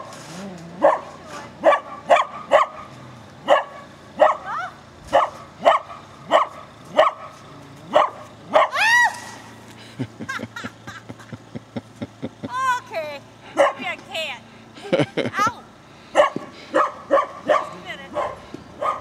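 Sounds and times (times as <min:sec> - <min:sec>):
dog barking: 0:00.8 - 0:08.8, 0:13.5 - 0:13.8, 0:16.1 - 0:19.0.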